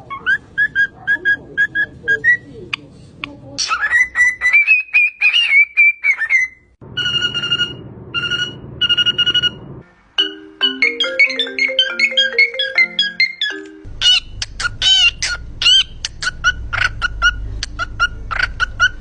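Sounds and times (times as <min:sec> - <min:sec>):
parrot whistling: 0:03.6 - 0:09.6, 0:11.1 - 0:19.0
beeping notes: 0:07.0 - 0:13.9
ringtone-like ringing: 0:10.2 - 0:13.9.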